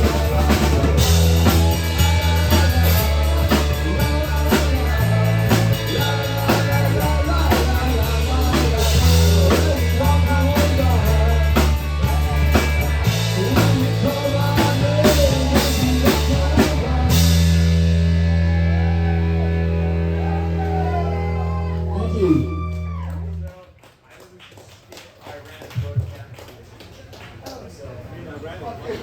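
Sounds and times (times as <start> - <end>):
rock band playing: 0.0 - 23.4.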